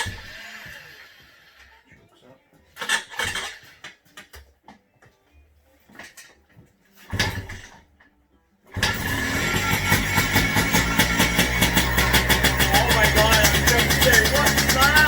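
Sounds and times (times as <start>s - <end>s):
two-stroke engine starting and running: 0.0s - 1.6s, 2.8s - 3.8s, 7.1s - 7.7s, 8.7s - 15.0s.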